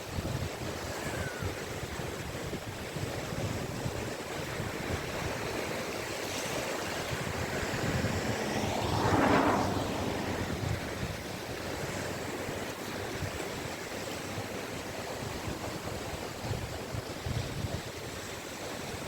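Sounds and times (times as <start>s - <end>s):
small waves washing onto beach: 0.0s - 19.0s
wave breaking: 6.0s - 12.8s.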